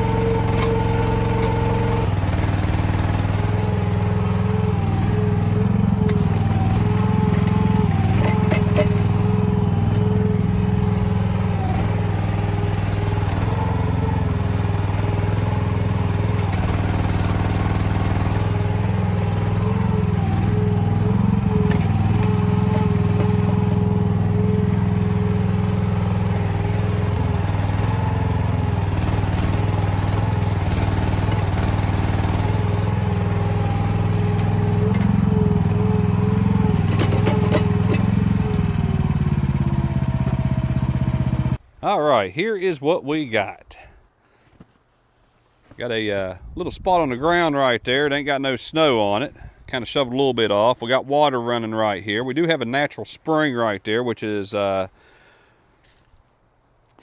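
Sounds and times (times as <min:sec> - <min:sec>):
excavator engine running: 0:00.0 - 0:41.6.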